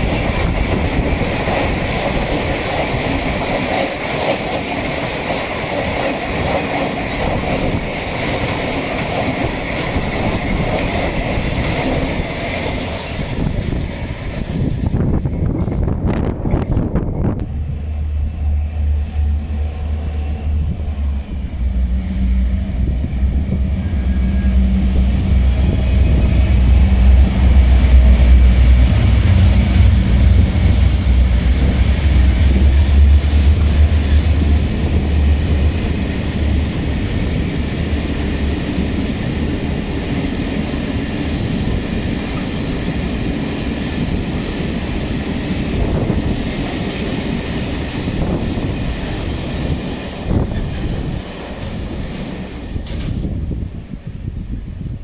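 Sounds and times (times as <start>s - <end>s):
freight train rumbling past: 0.0s - 55.0s
thin high whine: 17.2s - 37.6s.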